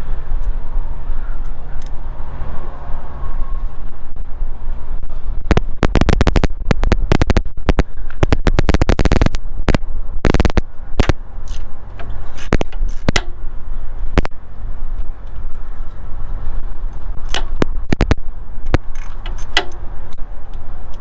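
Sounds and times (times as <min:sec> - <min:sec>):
steady low hum: 0:00.0 - 0:21.0
ratchet wrench clicking: 0:18.8 - 0:20.2.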